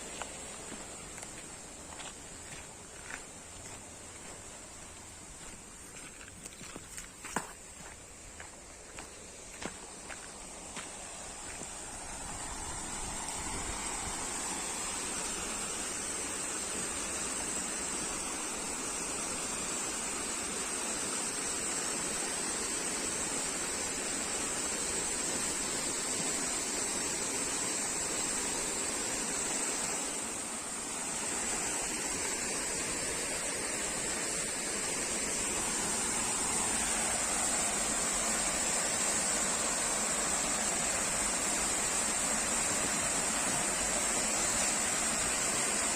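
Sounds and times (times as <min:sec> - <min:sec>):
waterfall rushing: 0:10.4 - 0:45.9.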